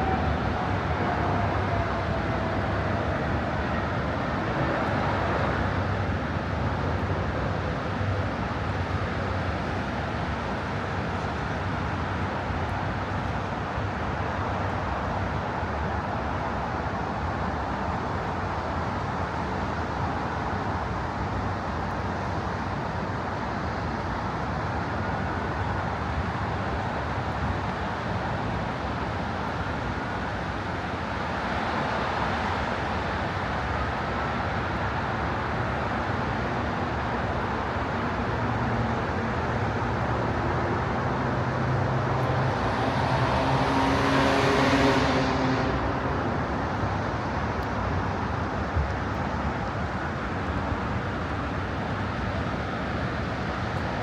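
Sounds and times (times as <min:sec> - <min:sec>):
faint rising whines: 0:00.0 - 0:05.8
road traffic noise: 0:00.0 - 0:16.5, 0:24.7 - 0:54.0.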